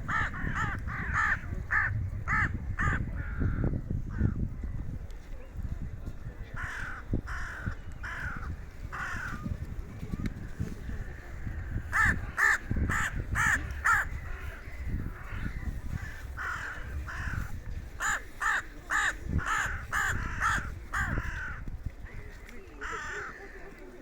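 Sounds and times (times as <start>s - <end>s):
crows cawing: 0.1s - 3.7s, 6.6s - 9.4s, 11.0s - 21.6s, 22.8s - 23.7s.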